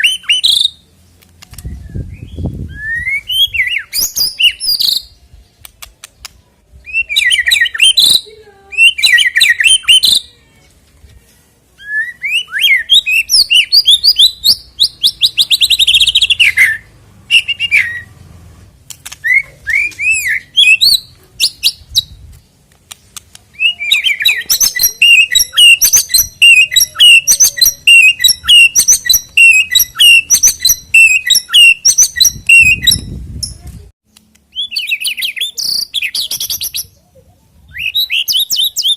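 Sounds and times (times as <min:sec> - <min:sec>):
bird singing whistled phrases: 0:00.0 - 0:00.8, 0:01.6 - 0:05.2, 0:06.8 - 0:10.3, 0:11.8 - 0:18.1, 0:19.2 - 0:22.2, 0:23.5 - 0:33.1, 0:34.5 - 0:37.0, 0:37.7 - 0:38.9.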